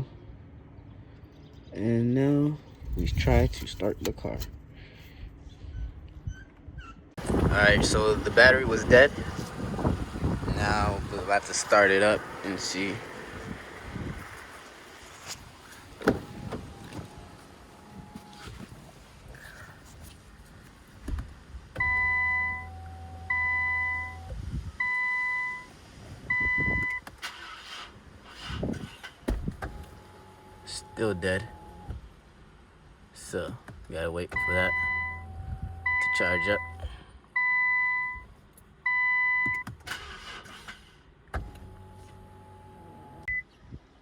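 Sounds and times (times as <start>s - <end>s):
whirring rush: 7.2s - 18.8s
car warning chime beeping: 21.8s - 25.7s, 26.3s - 27.0s, 34.3s - 39.7s, 43.2s - 43.4s.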